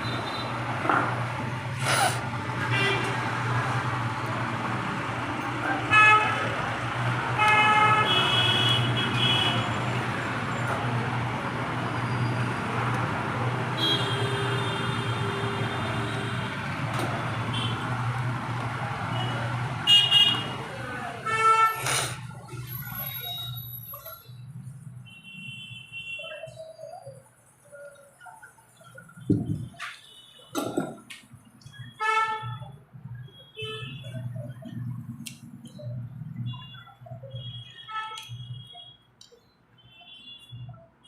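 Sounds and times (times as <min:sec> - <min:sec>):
road traffic: 0:00.0 - 0:41.0
vehicle horns honking: 0:05.9 - 0:06.5, 0:07.4 - 0:09.8, 0:13.8 - 0:16.6, 0:19.2 - 0:20.6, 0:21.2 - 0:22.2, 0:31.8 - 0:34.3.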